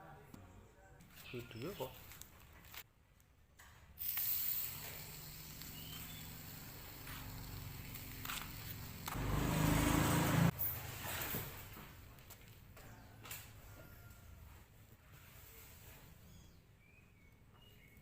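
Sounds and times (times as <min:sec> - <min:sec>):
car engine running and revving: 0:07.1 - 0:10.6.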